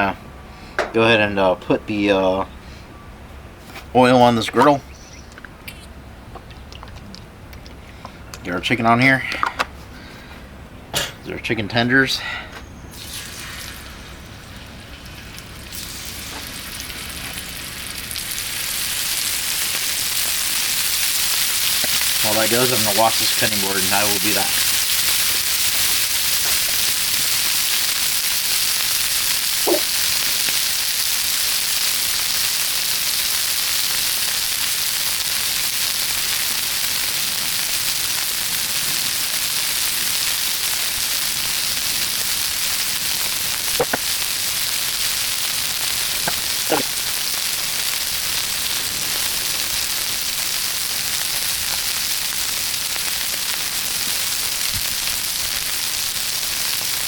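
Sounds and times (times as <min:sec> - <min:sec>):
food sizzling on griddle: 0:12.9 - 0:57.0.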